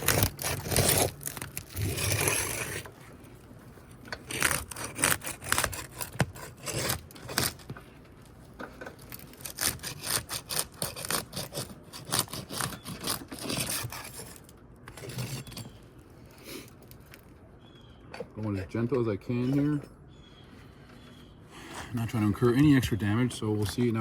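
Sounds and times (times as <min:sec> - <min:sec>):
roofing tool scraping shingles: 0:00.0 - 0:03.3, 0:04.1 - 0:08.0, 0:08.8 - 0:15.8.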